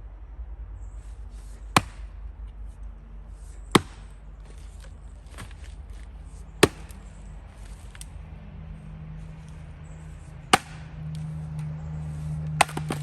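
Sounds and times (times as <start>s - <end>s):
axe chopping firewood: 1.7s - 2.2s, 3.6s - 8.1s, 10.4s - 13.0s.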